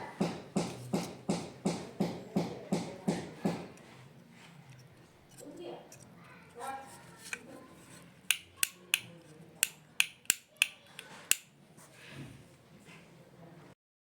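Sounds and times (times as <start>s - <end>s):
plastic switch clicking: 8.3s - 11.5s.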